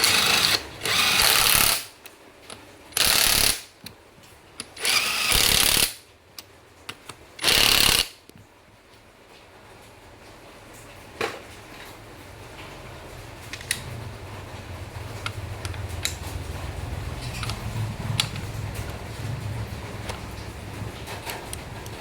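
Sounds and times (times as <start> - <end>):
low steady hum: 8.3 - 22.0.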